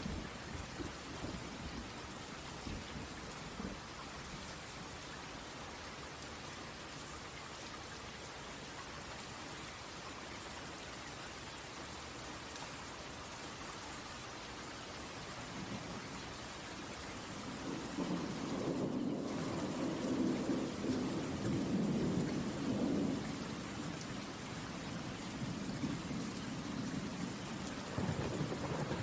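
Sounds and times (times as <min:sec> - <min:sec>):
rain falling: 0:00.0 - 0:29.0
thunder rumble: 0:17.6 - 0:24.0, 0:25.4 - 0:29.0.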